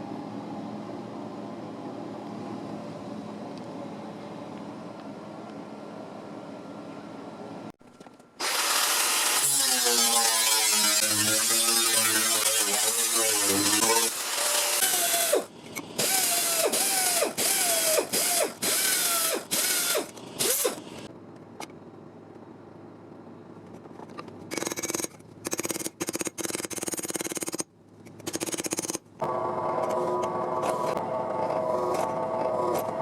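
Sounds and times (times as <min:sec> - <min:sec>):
handheld power tool bursts: 0:08.4 - 0:21.1.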